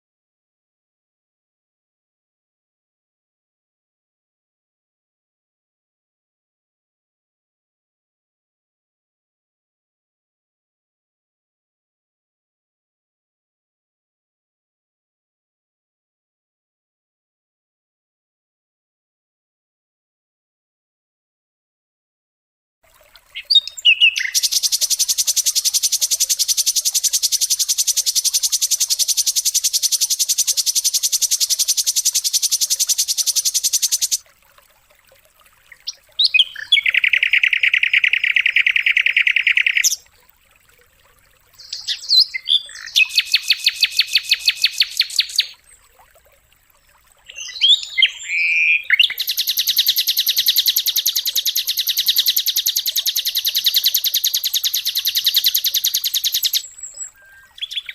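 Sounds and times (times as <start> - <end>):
songbird trills: 23.3 - 34.2, 35.7 - 40.0, 41.6 - 45.8, 47.2 - 57.9.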